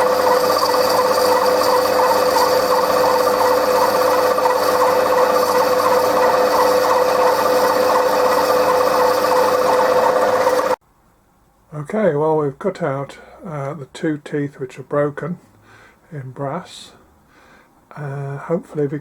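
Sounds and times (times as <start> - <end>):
metal lathe whining: 0.0 - 10.8.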